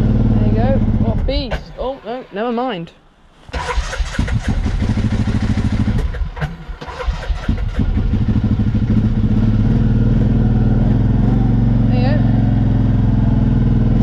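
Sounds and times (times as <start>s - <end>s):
quad bike engine starting and idling: 0.0s - 1.5s, 3.5s - 14.0s.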